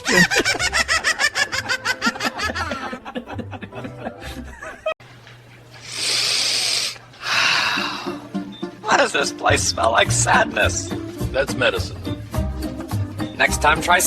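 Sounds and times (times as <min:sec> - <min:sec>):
rapid laughter: 0:00.0 - 0:05.0
bursts of hiss: 0:05.8 - 0:08.0
soft music beat: 0:07.8 - 0:14.0.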